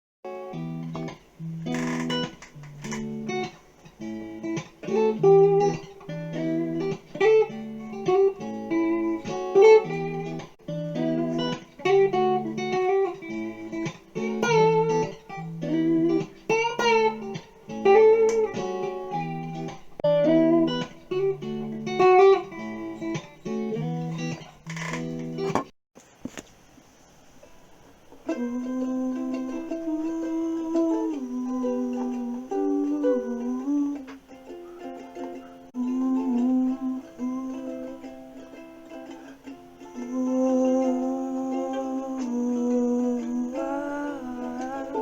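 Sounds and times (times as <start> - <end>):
plucked guitar music: 0.3 - 25.7, 28.2 - 45.0.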